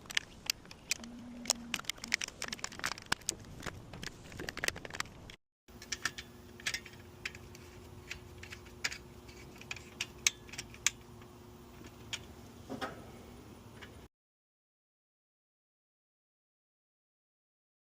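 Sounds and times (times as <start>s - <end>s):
small metal parts clicking: 0.0s - 12.3s
faint steady hum: 0.0s - 14.1s.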